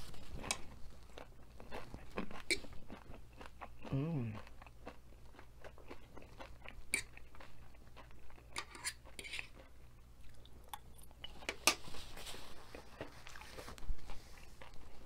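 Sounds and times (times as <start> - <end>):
chewing and crunching nachos: 0.0 - 15.0.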